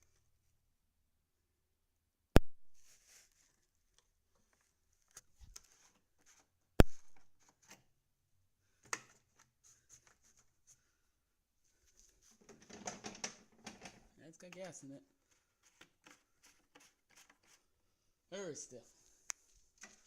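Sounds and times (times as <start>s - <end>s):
small clicks and rattles: 12.3s - 14.8s.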